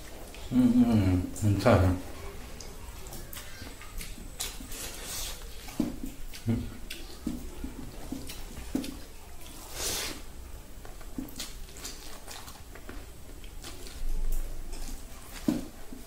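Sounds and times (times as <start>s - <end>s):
wet chewing and lip smacks: 2.5s - 10.2s, 10.8s - 15.9s.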